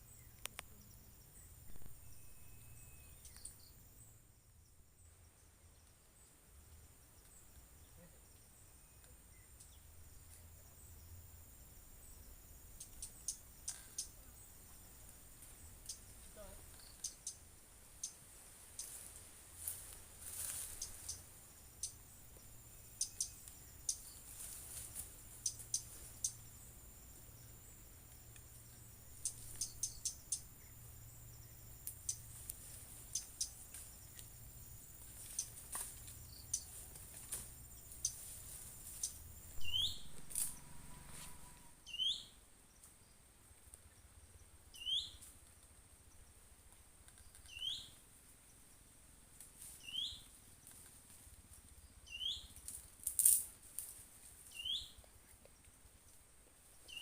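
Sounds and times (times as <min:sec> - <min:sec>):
high insect whine: 0:00.0 - 0:46.5
bird hooked whistle: 0:01.7 - 0:03.5, 0:39.6 - 0:42.2.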